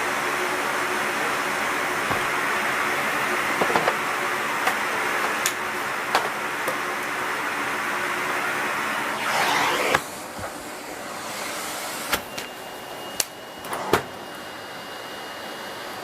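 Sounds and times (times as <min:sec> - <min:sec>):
rush of air: 0:09.1 - 0:10.2
vacuum cleaner running: 0:09.1 - 0:12.2.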